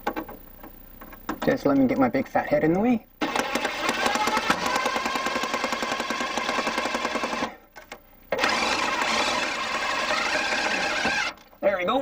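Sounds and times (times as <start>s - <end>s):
power driver hammering rattle: 3.2s - 7.5s.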